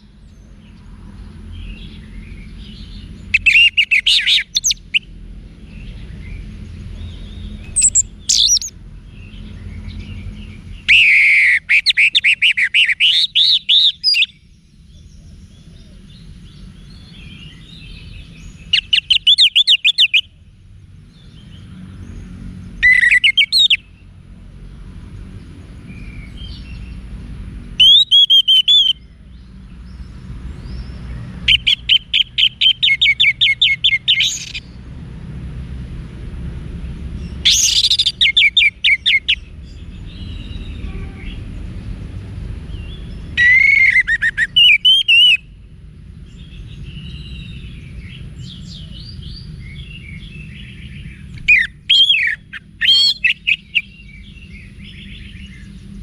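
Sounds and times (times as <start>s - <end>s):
bird chirps and trills: 0.0s - 24.2s, 25.1s - 34.9s, 36.8s - 56.0s
soft bird warbling: 7.7s - 8.7s.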